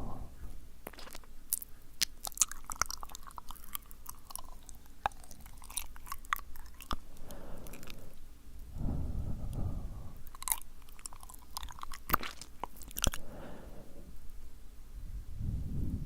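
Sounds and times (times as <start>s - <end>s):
soft breathy puffs: 0.0s - 0.7s, 7.0s - 10.3s, 13.2s - 14.5s
wet lip and tongue clicks: 0.8s - 8.2s, 9.5s - 13.2s.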